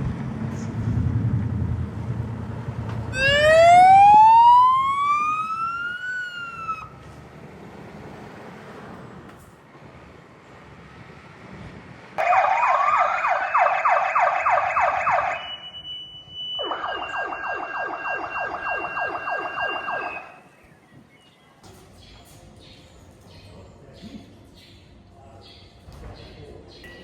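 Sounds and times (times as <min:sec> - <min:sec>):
electronic siren wailing and yelping: 0:03.1 - 0:06.9, 0:12.2 - 0:20.4.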